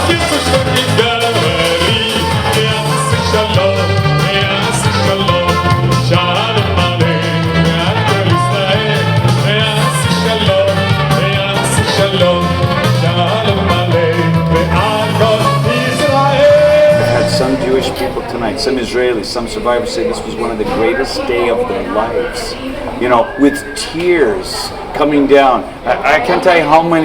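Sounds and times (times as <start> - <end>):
person singing: 0.0 - 18.2
instrumental backing with pulsing bass: 0.0 - 18.3.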